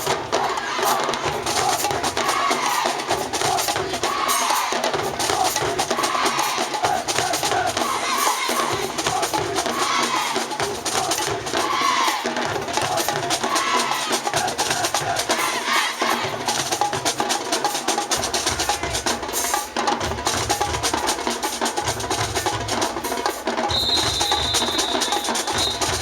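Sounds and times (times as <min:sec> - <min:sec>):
snare drum cadence: 0:23.4 - 0:26.0.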